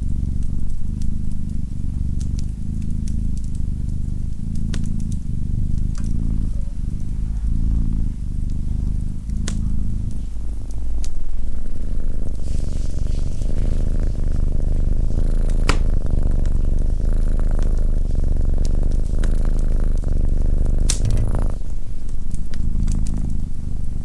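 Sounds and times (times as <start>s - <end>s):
cat purring: 0.0s - 24.0s
sharp pops: 15.7s - 15.9s, 20.9s - 21.6s.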